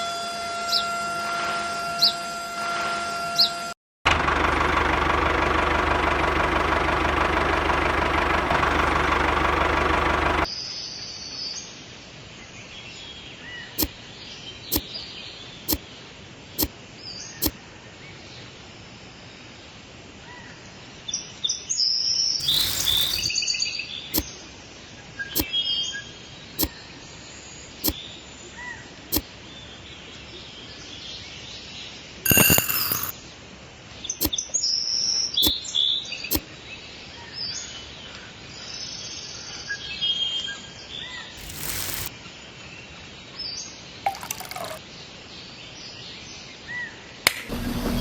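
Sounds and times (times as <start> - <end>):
small engine running: 4.1 - 10.5, 22.4 - 23.3, 32.3 - 33.1, 41.4 - 42.1, 47.5 - 48.0
harsh noisy burst: 22.4 - 23.3, 41.4 - 42.1, 47.5 - 48.0
sharp clicks: 22.4 - 23.3, 32.3 - 33.1, 41.4 - 42.1.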